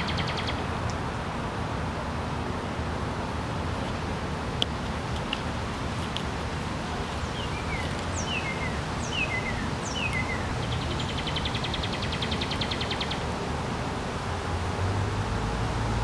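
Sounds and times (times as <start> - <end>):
bird chirps and trill: 0.0 - 0.6, 7.2 - 13.2
outdoor background noise: 0.0 - 16.0.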